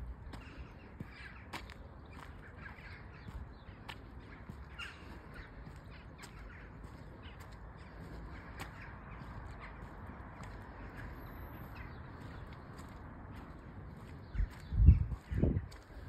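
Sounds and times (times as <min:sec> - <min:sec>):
birds calling: 0:00.0 - 0:16.0
steady low rumble: 0:05.3 - 0:16.0.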